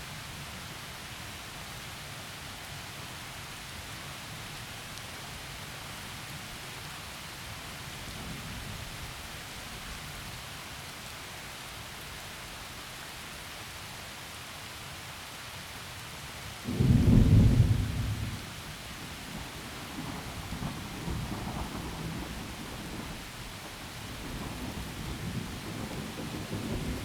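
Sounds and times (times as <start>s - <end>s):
low rumble of thunder: 7.8s - 10.4s, 16.7s - 27.0s
heavy rain falling: 16.7s - 27.0s
loud thunder clap: 16.7s - 27.0s.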